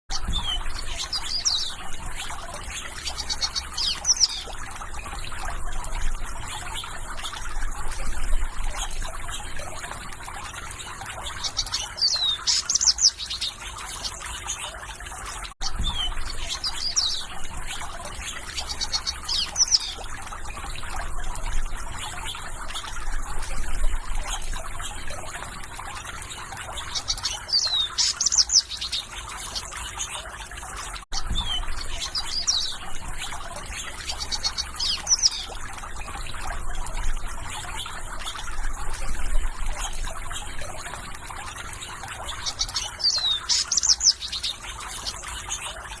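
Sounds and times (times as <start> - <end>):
small birds chirping: 0.1 - 46.0
water trickling and splashing: 0.1 - 46.0.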